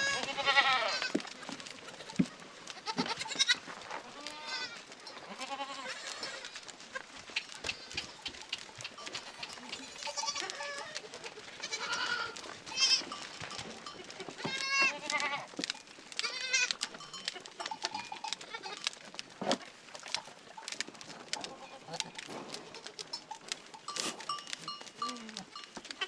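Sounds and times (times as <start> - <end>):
goats bleating: 0.0 - 19.0, 21.4 - 23.2.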